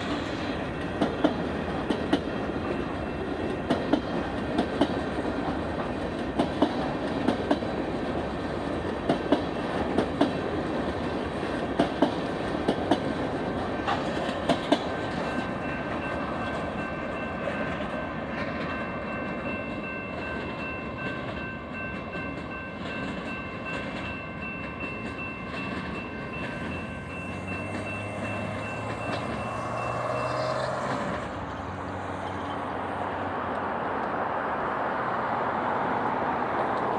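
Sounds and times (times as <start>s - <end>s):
train wheels clicking over joints: 0.0s - 31.8s
road vehicles passing: 25.4s - 36.9s.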